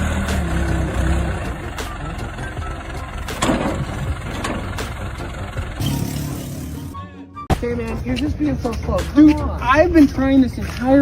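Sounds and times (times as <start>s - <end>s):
engine humming: 0.0s - 7.2s.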